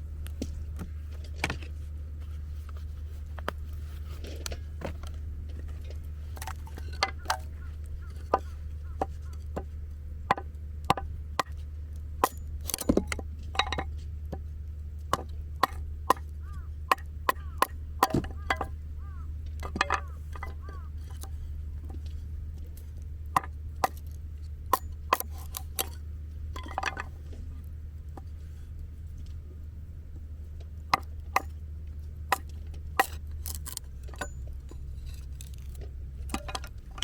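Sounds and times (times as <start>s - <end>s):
low hum: 0.0s - 37.0s
sharp wooden knocks: 15.2s - 21.2s.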